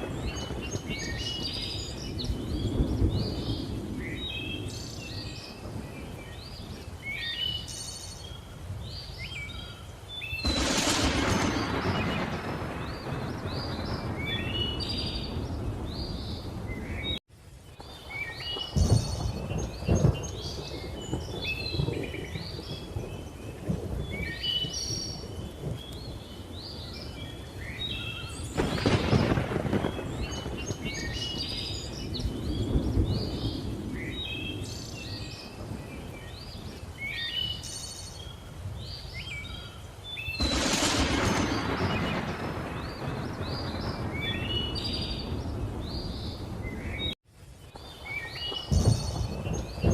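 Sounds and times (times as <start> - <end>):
rolling thunder: 0.0 - 6.8, 10.4 - 17.2, 17.8 - 36.8, 40.3 - 47.2, 48.0 - 49.9
thunder claps: 0.0 - 6.8, 10.4 - 17.2, 17.8 - 27.2, 28.4 - 36.8, 40.4 - 47.2, 48.4 - 49.9
rain: 0.0 - 49.9.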